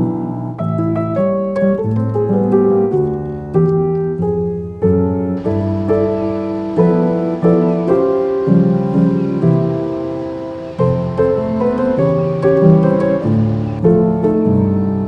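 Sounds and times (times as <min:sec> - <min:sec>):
piano music: 0:00.0 - 0:15.0
faint hiss: 0:05.3 - 0:15.0.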